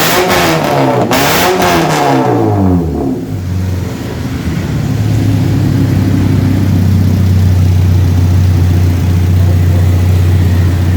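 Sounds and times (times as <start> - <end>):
car engine idling: 2.4 - 10.9.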